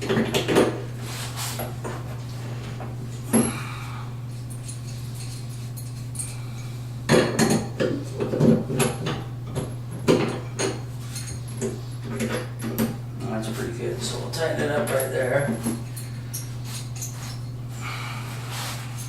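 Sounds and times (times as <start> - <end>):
metal clinks of plumbing fittings: 14.4 - 17.4.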